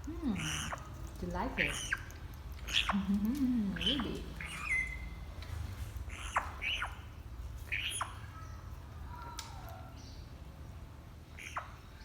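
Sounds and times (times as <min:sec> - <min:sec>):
parrot whistling: 0:03.8 - 0:05.2.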